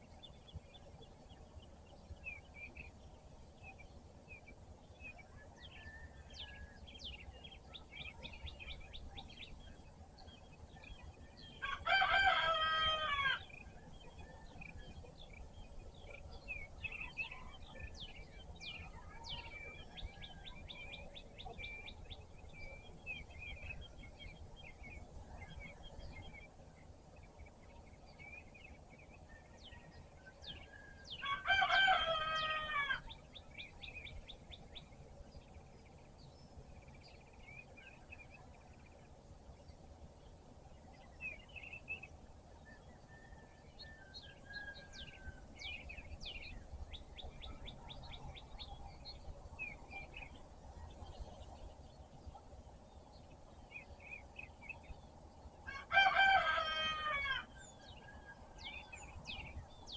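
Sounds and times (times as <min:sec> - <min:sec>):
small birds chirping: 0:00.0 - 0:59.9
rooster crowing: 0:11.6 - 0:13.6, 0:30.6 - 0:33.1, 0:43.0 - 0:45.6, 0:55.7 - 0:58.7.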